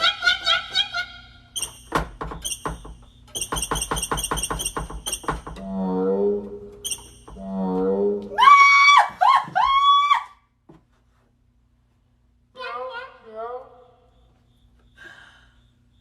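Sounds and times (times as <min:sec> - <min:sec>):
cricket chirping: 0:01.6 - 0:05.8, 0:06.4 - 0:08.0, 0:13.0 - 0:16.0.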